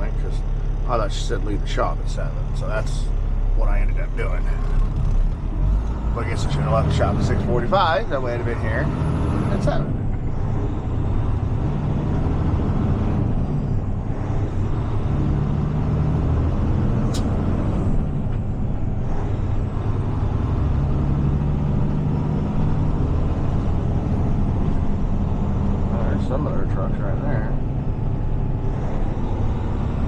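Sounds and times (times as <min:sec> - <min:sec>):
truck diesel engine droning: 0:00.0 - 0:30.0
sharp click: 0:17.1 - 0:17.4.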